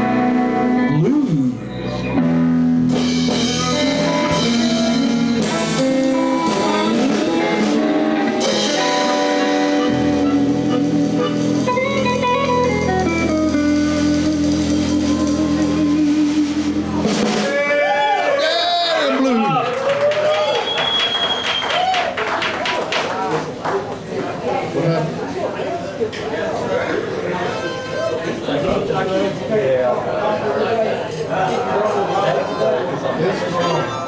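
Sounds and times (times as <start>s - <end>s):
blues band playing: 0.0s - 19.2s.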